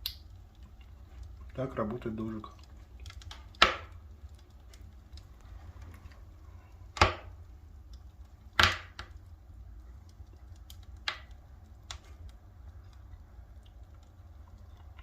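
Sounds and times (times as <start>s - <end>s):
firewood crackling: 0.0s - 15.0s
sharp pops: 3.0s - 4.0s, 6.9s - 7.4s, 8.5s - 9.2s.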